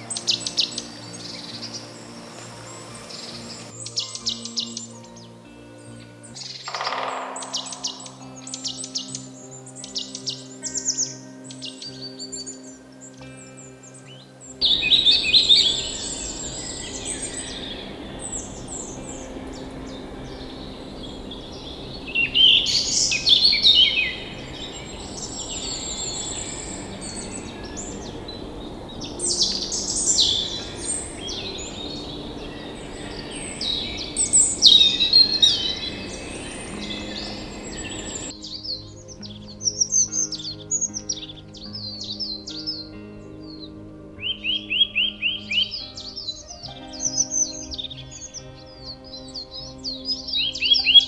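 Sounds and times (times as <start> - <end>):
steady background hiss: 0.0 - 38.3
birds chirping and trilling: 0.0 - 51.0.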